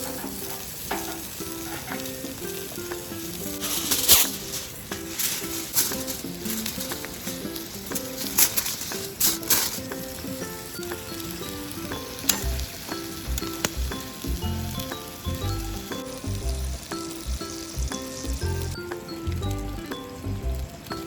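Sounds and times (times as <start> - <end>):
patty sizzling: 0.0 - 21.0
plucked music with bass line: 11.2 - 20.8.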